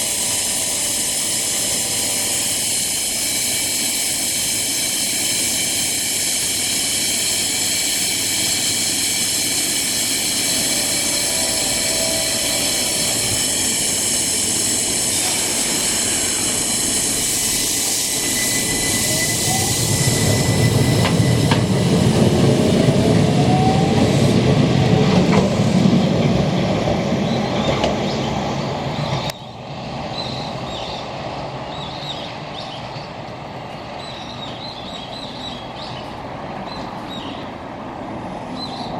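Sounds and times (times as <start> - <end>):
high wheel squeal: 0.0 - 26.2
train running on rails: 0.0 - 38.9.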